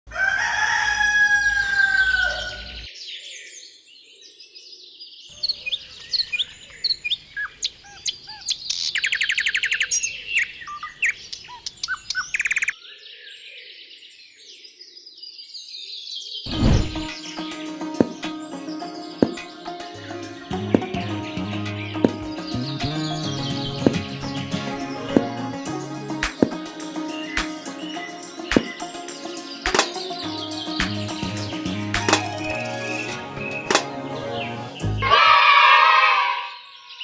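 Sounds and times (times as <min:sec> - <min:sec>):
birds chirping and singing: 0:16.5 - 0:35.4
bird trill: 0:16.6 - 0:33.9.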